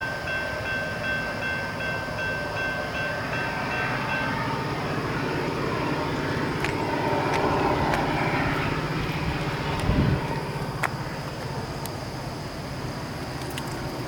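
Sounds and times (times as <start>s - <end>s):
high ringing tone: 0.0s - 9.3s
freight train rumbling: 0.0s - 14.0s.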